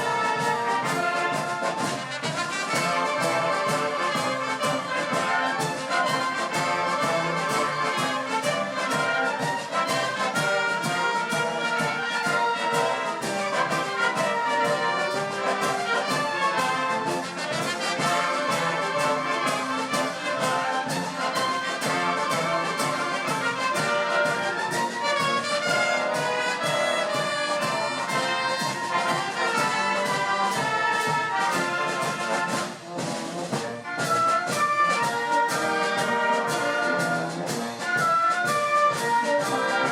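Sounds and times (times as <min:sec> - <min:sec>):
brass wind band music: 0:00.0 - 0:39.9.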